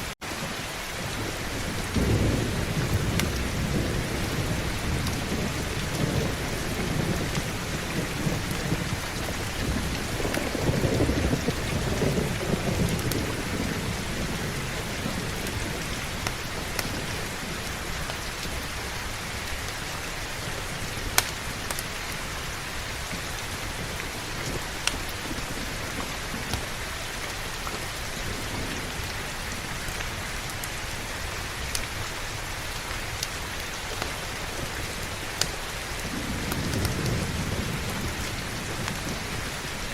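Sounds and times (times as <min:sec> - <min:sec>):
heavy rain falling: 0:00.0 - 0:39.9
rolling thunder rumble: 0:00.4 - 0:19.6, 0:34.1 - 0:39.9.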